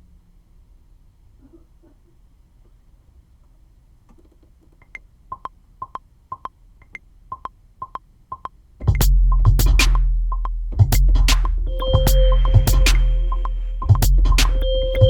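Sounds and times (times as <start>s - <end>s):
metronome clicks: 4.8s - 10.6s, 11.7s - 15.0s.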